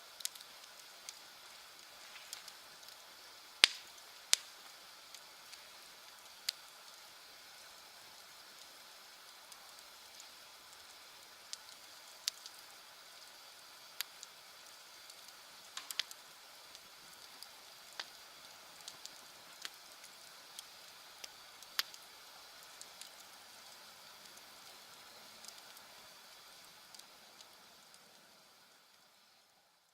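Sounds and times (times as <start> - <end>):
bonfire hiss: 0.0 - 29.9
fire pops and snaps: 0.1 - 7.1, 9.5 - 12.6, 13.9 - 28.3.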